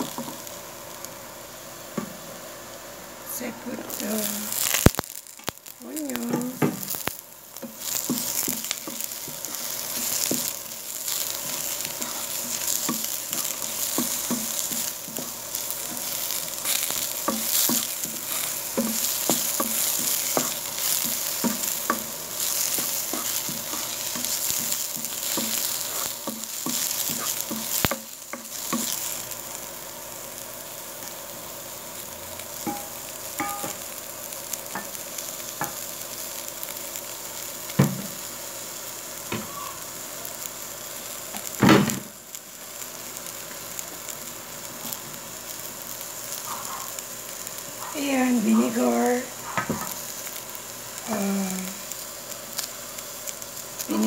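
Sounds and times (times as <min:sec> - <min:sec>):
garlic and onion sizzling: 0:00.0 - 0:54.0
wooden spoon scraping a pan: 0:07.6 - 0:29.1, 0:46.4 - 0:47.0.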